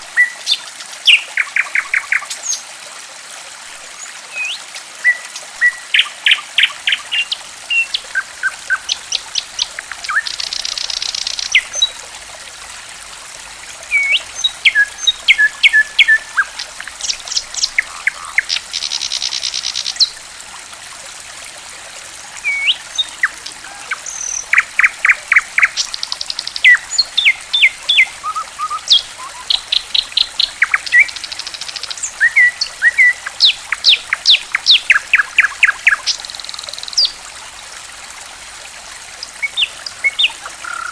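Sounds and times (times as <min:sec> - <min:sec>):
trickle of running water: 0:00.0 - 0:40.9
songbird chirps and trills: 0:13.8 - 0:20.2, 0:22.3 - 0:37.2.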